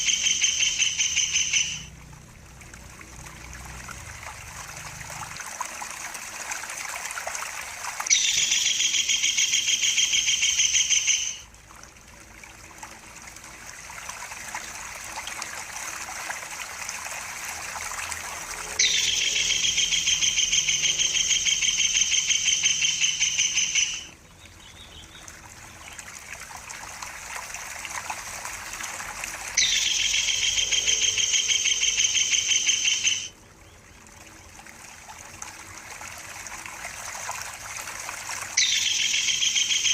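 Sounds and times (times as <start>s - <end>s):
bird's rapid high trill: 0.0s - 1.9s, 8.1s - 11.4s, 18.8s - 24.1s, 29.6s - 33.3s, 38.6s - 39.9s
trickling water: 0.0s - 39.9s.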